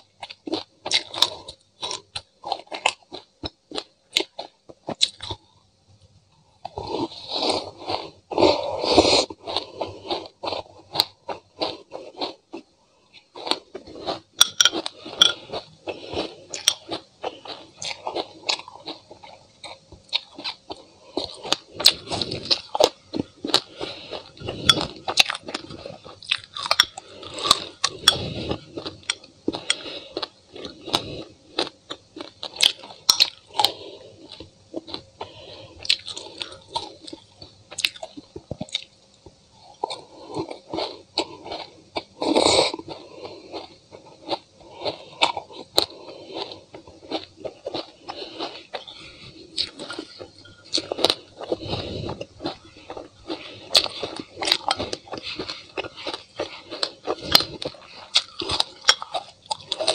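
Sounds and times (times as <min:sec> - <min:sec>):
chewing crunchy seeds: 0:00.0 - 0:05.5, 0:06.7 - 0:59.9.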